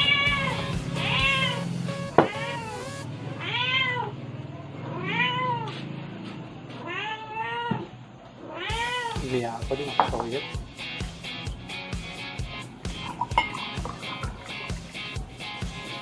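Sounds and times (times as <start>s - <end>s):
cat meowing: 0.0s - 4.2s, 4.9s - 5.8s, 6.8s - 9.3s.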